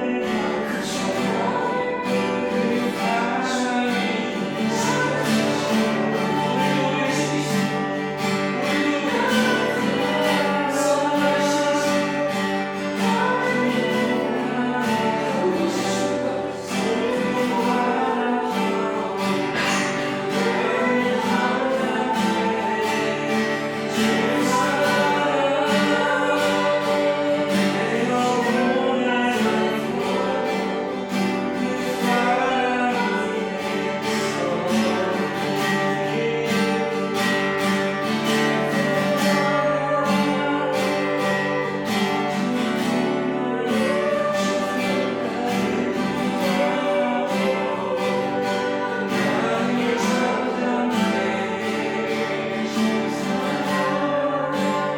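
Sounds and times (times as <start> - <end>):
congregation singing: 0.0 - 54.9
guitar accompaniment: 0.0 - 54.9.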